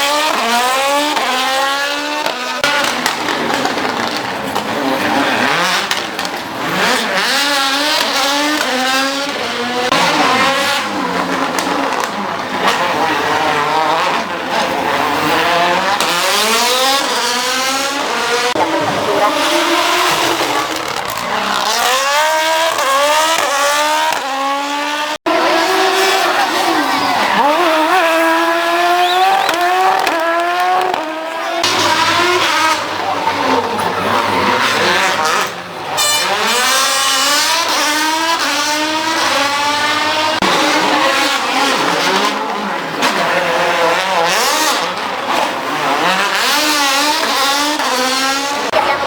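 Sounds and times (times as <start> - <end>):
car engine revving: 0.0 - 49.0
tyres squealing: 25.8 - 32.0.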